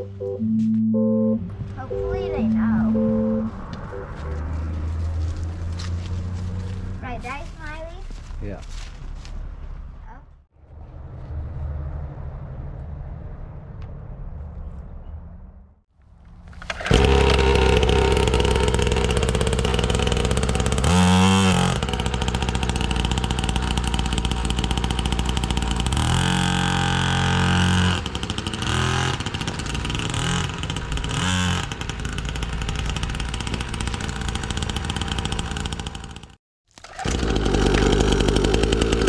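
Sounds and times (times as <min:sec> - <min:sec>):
dirt bike engine revving: 0:16.7 - 0:36.4, 0:37.0 - 0:39.0.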